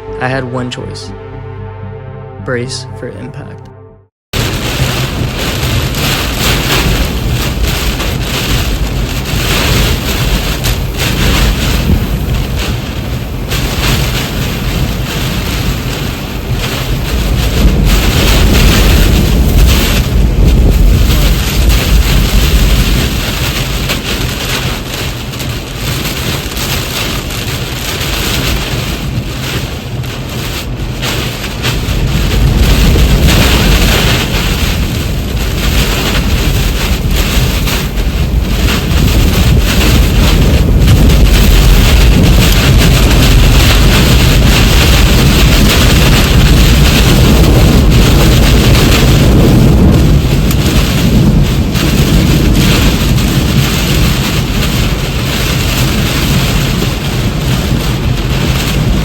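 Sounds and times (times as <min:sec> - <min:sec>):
heavy rain battering a vehicle: 0:04.4 - 0:59.0
tornado winds: 0:04.4 - 0:59.0
wind buffeting microphone: 0:04.4 - 0:59.0.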